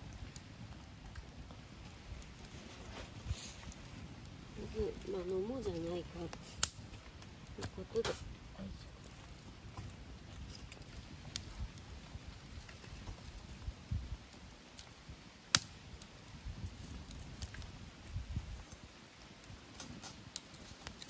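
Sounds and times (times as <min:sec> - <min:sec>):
low uneven rumble: 0:00.0 - 0:15.3
campfire crackling: 0:00.0 - 0:21.0
loud sharp fire snap: 0:03.4 - 0:08.8, 0:13.3 - 0:21.0.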